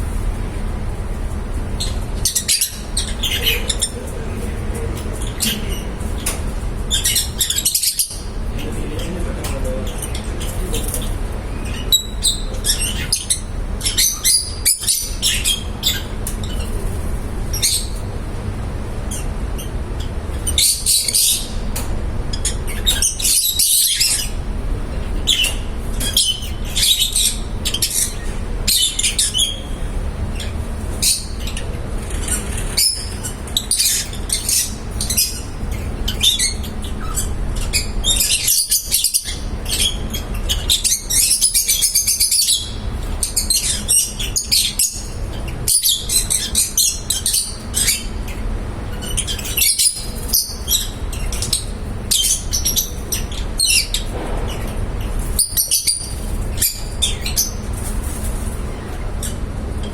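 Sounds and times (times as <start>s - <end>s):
lovebirds chirping: 0.0s - 18.3s, 19.0s - 59.4s
low background hum: 0.0s - 59.9s.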